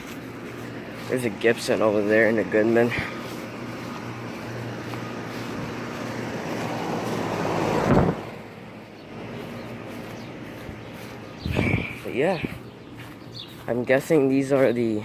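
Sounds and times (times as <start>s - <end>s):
air conditioner units humming: 0.0s - 15.0s.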